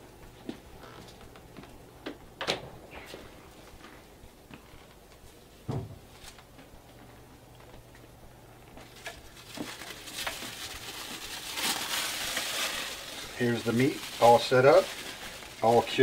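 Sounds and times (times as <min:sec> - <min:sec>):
light kitchen knocks: 0:05.7 - 0:06.0
cling wrap crinkling: 0:08.8 - 0:16.0.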